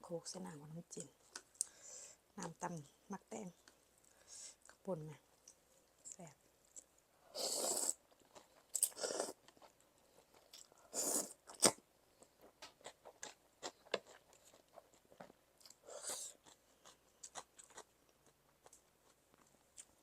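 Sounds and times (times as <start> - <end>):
person chewing crunchy food: 6.7 - 20.0.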